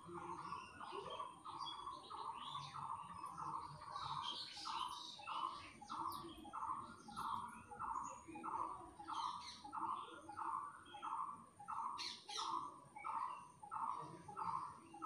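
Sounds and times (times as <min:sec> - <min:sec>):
birds chirping high: 0:00.0 - 0:15.0.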